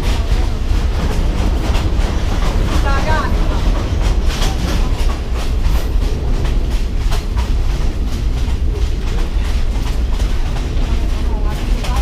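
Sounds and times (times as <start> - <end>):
rattles and wheel clatter: 0.0 - 12.0
train carriage rumbling: 0.0 - 12.0.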